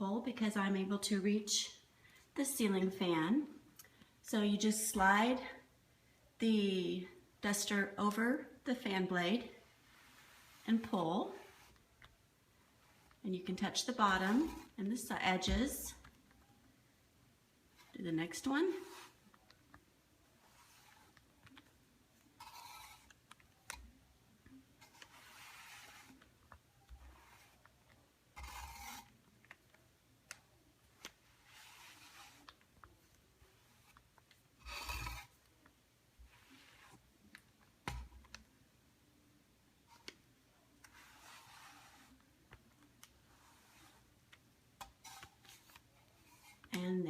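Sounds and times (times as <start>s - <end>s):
duster rubbing fan blade: 24.8s - 26.3s, 28.4s - 29.2s, 31.4s - 32.6s
duster swishing along fan blade: 24.8s - 26.3s.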